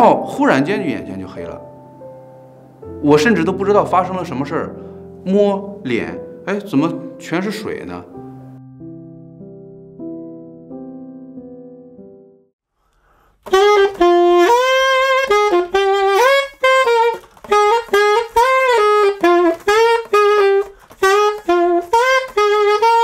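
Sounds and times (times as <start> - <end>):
saxophone melody: 0.0 - 8.8, 13.4 - 23.0.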